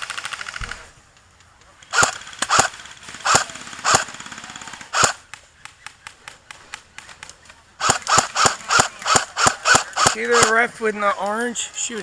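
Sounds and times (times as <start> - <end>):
full-auto airsoft fire: 1.9 - 5.3, 7.8 - 10.6
loud sharp airsoft shots: 1.9 - 5.4, 7.8 - 10.6.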